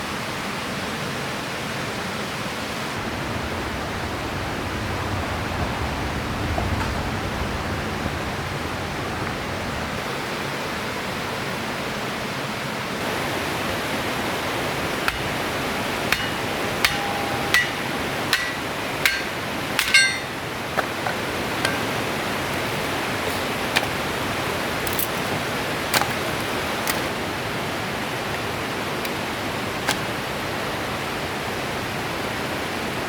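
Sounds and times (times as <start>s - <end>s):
flowing river: 7.6s - 33.0s
sharp metallic knocks: 15.1s - 24.1s.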